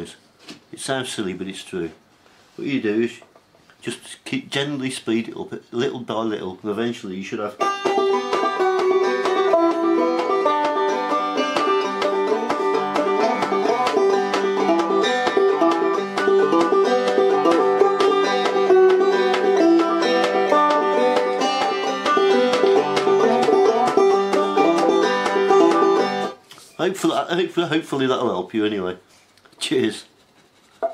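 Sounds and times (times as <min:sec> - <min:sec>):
banjo plucked notes: 0:07.5 - 0:26.4.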